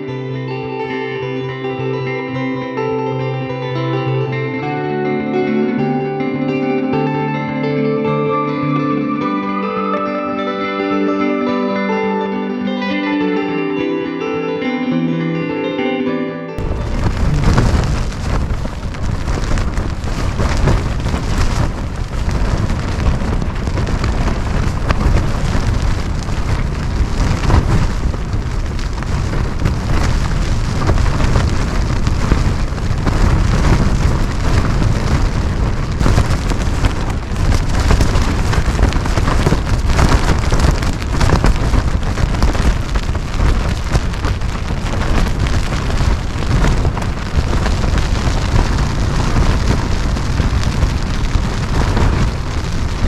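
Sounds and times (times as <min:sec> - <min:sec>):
tent fabric flapping: 0:16.6 - 0:53.0
wind gusting on microphone: 0:16.6 - 0:53.0.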